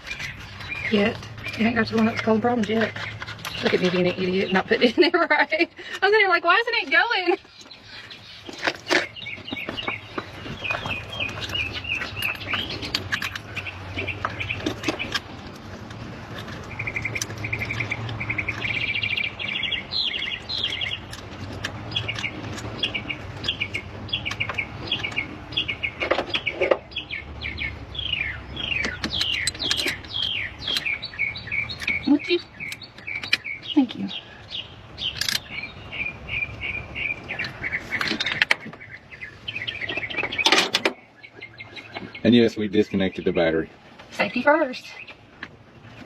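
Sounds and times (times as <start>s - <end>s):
small birds chirping: 0.0s - 46.0s
sharp clicks and knocks: 8.4s - 26.9s, 28.7s - 33.5s, 37.3s - 39.1s, 39.8s - 41.0s.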